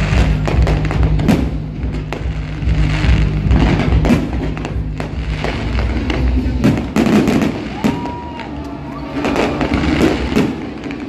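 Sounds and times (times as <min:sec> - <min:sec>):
fireworks banging and crackling: 0:00.0 - 0:11.0
loud music with heavy bass: 0:00.0 - 0:11.0.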